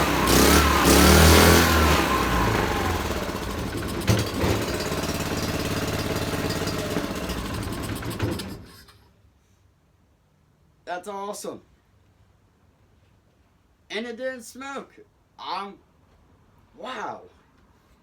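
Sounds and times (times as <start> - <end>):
small engine running and revving: 0.0 - 8.8.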